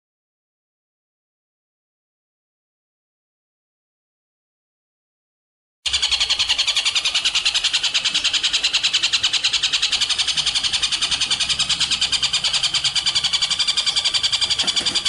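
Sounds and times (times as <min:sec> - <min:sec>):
songbird chirping rapidly: 0:05.9 - 0:15.0.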